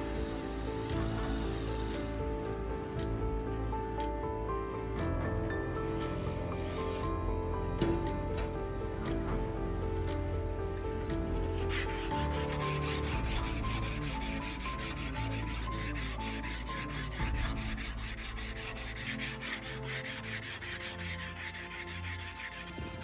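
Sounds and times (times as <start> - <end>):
light background music: 0.0 - 23.0
abrasive rubbing on steel blade: 11.5 - 23.0.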